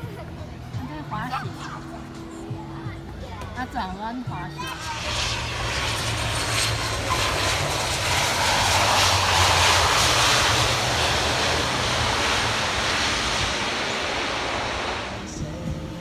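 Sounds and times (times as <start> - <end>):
airplane passing: 0.8 - 16.0
steady low hum: 4.8 - 16.0.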